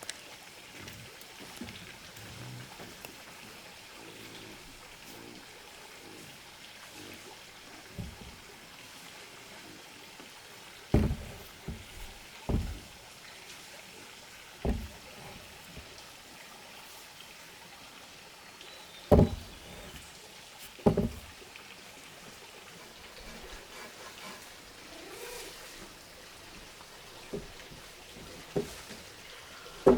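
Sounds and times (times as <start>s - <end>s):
dull knocks: 7.9s - 8.4s, 10.9s - 13.0s, 14.6s - 15.4s, 19.1s - 20.0s, 20.8s - 21.3s.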